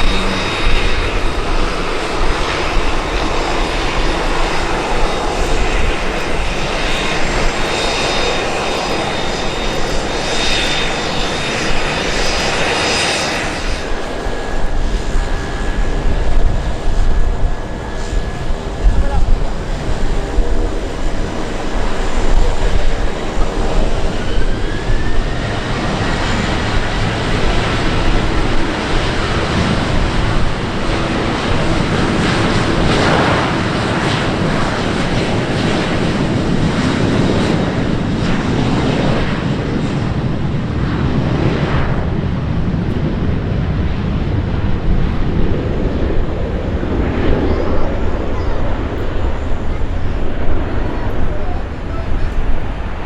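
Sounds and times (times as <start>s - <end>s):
faint rising whine: 0.0s - 3.9s
airplane engines running: 0.0s - 53.0s.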